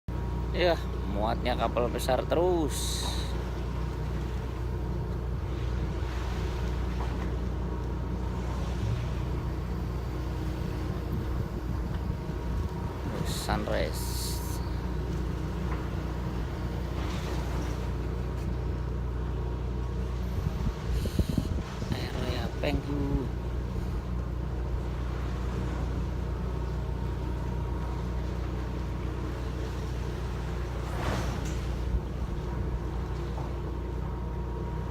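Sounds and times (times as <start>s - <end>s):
boat engine droning: 0.1s - 34.9s.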